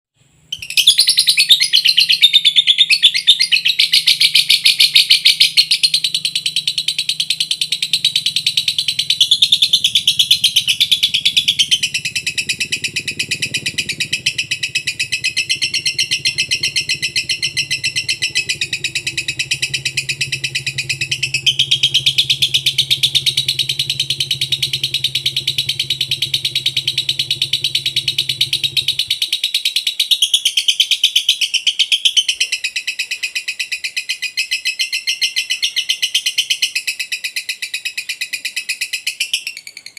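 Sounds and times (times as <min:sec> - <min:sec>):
lovebird chattering trills: 0:00.6 - 0:39.6
faint low hum: 0:03.5 - 0:29.4.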